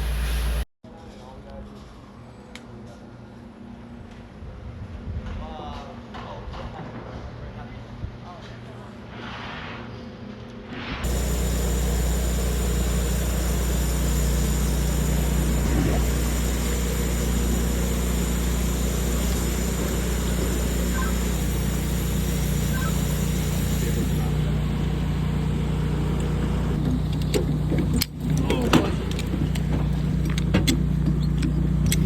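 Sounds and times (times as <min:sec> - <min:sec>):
engine running steadily: 0:00.0 - 0:00.6, 0:11.0 - 0:32.0
faint high whine: 0:11.0 - 0:26.8.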